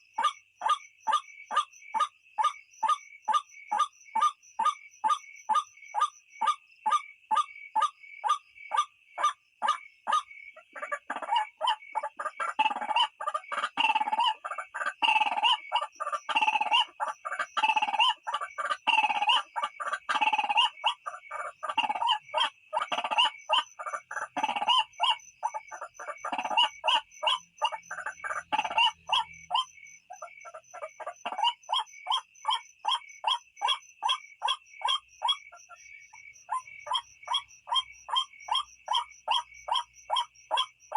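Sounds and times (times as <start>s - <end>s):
waterhen calls: 9.2s - 35.8s.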